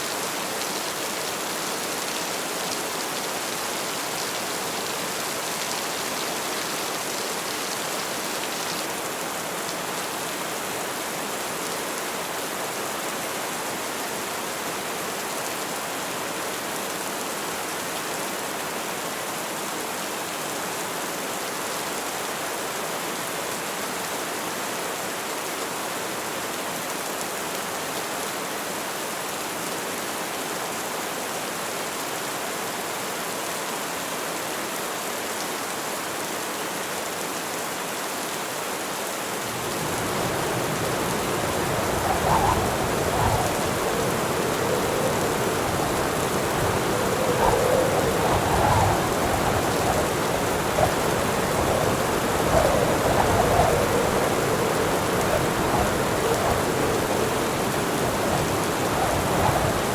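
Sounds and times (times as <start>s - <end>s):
heavy rain falling: 0.0s - 11.8s, 39.3s - 59.9s.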